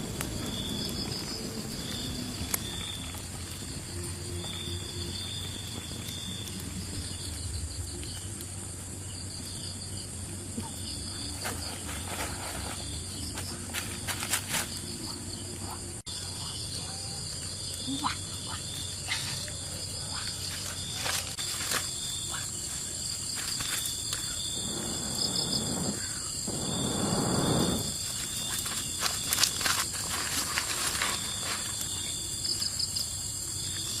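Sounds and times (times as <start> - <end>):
insects chorus: 0.0 - 34.0
rustling: 22.8 - 32.7.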